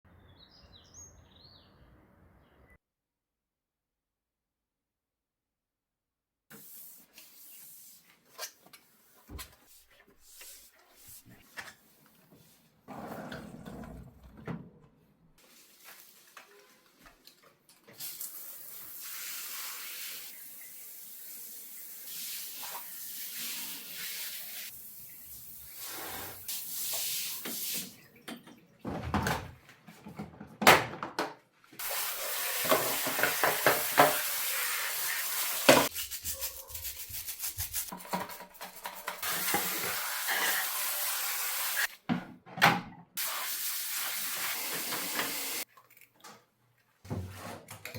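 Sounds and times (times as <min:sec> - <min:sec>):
water running: 0:31.8 - 0:41.9, 0:43.2 - 0:45.7
scrubbing and rubbing: 0:35.8 - 0:39.2.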